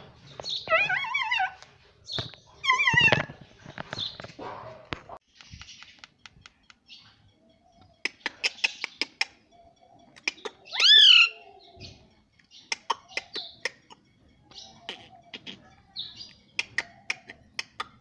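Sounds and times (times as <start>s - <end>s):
parrot clicking and chirping: 5.3s - 11.5s, 12.2s - 18.0s.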